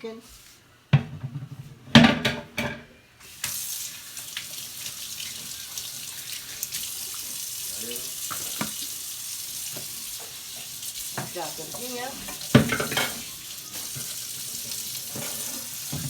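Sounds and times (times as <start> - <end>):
kitchenware clattering: 1.0 - 3.0, 8.2 - 9.0, 9.7 - 16.0
tap water running into sink: 2.2 - 16.0.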